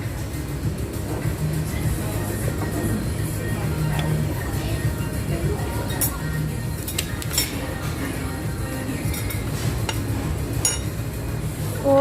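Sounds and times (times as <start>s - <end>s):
cutlery clinking on plates: 5.9s - 8.0s, 9.0s - 11.0s.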